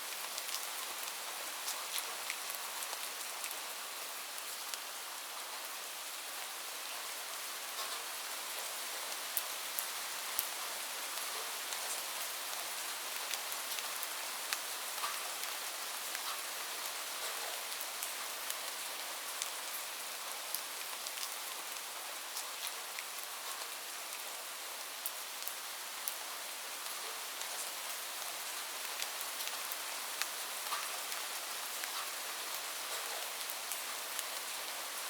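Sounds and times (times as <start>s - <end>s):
rain falling: 0.0s - 35.0s
raindrops ticking on surface: 9.3s - 24.2s, 26.8s - 34.7s.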